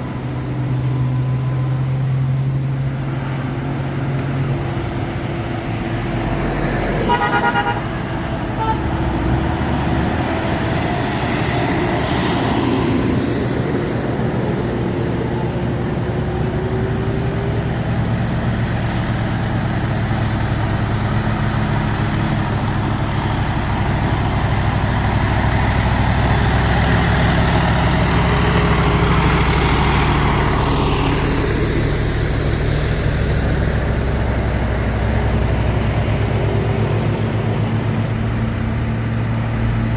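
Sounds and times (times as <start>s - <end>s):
truck diesel engine running: 0.0s - 39.9s
truck horn toot: 7.0s - 9.0s.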